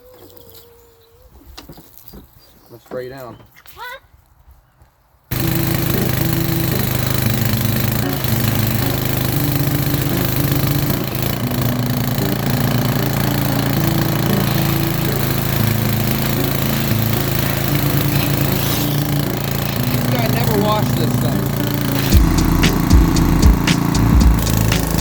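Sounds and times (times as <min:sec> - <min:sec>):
pressure washer engine drone: 0:05.3 - 0:25.0
high-pressure water spray hiss: 0:13.5 - 0:20.5, 0:22.0 - 0:25.0.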